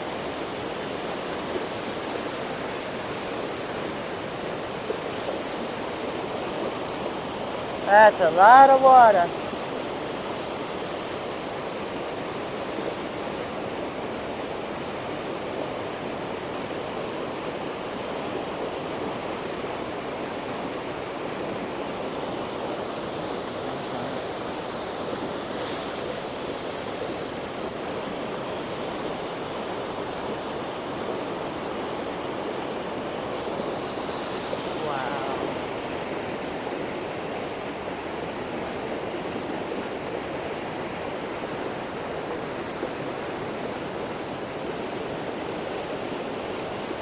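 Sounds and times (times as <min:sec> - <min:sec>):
waterfall rushing: 0:07.6 - 0:09.4, 0:33.2 - 0:36.0.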